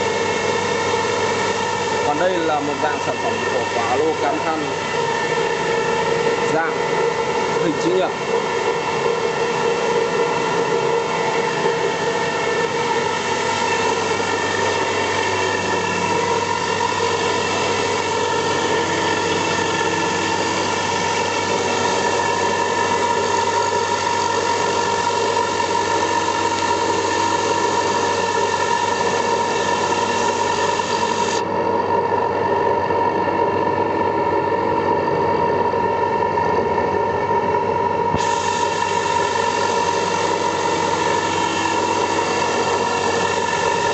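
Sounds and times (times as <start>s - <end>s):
milling machine spindle whine: 0.0s - 43.9s
hiss of cutting: 13.0s - 31.4s, 38.2s - 43.9s.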